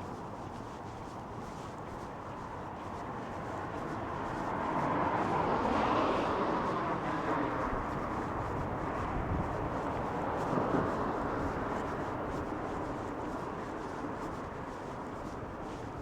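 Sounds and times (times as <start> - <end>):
passing vehicles: 4.0 - 13.7.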